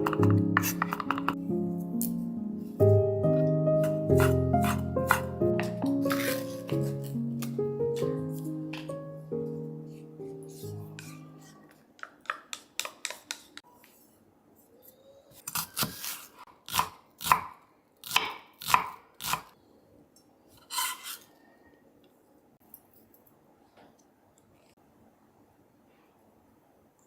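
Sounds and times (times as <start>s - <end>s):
background music: 0.0s - 11.4s
knife chopping on cutting board: 3.8s - 8.1s.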